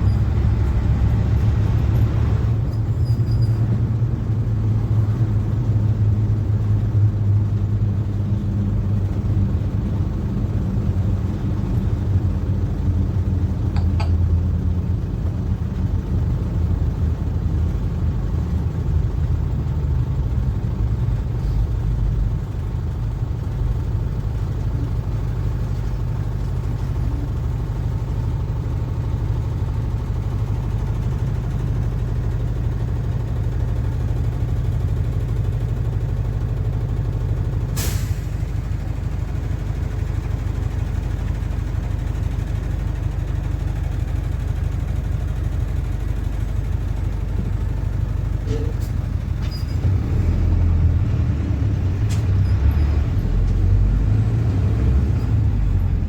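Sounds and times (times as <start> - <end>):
bus diesel engine drone: 0.0 - 56.0
air brake hiss: 37.7 - 38.5.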